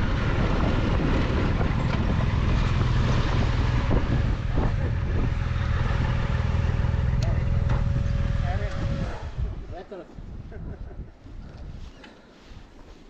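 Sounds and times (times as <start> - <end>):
motorcycle engine running: 0.0 - 9.7
wind noise on microphone: 0.0 - 13.0.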